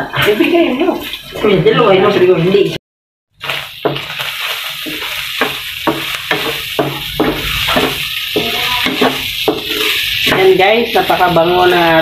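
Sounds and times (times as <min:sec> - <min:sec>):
meat sizzling in a frying pan: 0:03.4 - 0:12.0
spatula stirring and scraping: 0:03.4 - 0:12.0.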